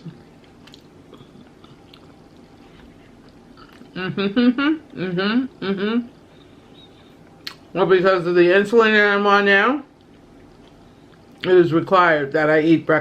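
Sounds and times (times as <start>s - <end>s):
chewing with wet mouth clicks: 0.1s - 4.0s, 6.1s - 7.7s, 10.0s - 11.5s
woman speaking: 3.9s - 6.1s.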